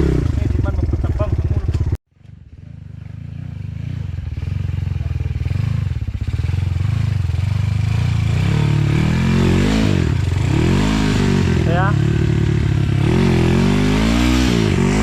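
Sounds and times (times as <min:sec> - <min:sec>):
dirt bike engine revving: 0:00.0 - 0:01.9, 0:02.7 - 0:15.0.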